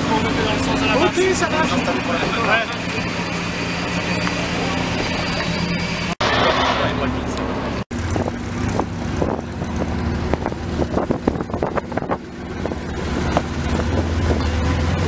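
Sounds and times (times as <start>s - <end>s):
car engine idling: 7.2s - 15.0s.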